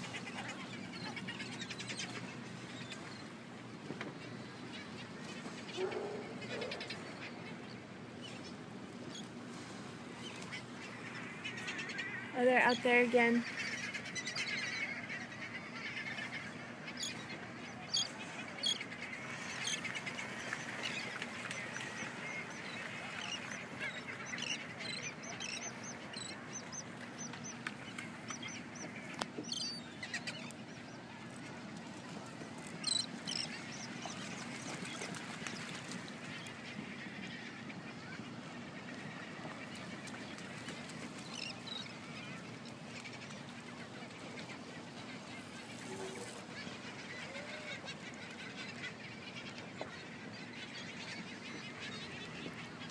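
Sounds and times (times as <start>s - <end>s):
sea lions barking and honking: 5.7s - 7.1s.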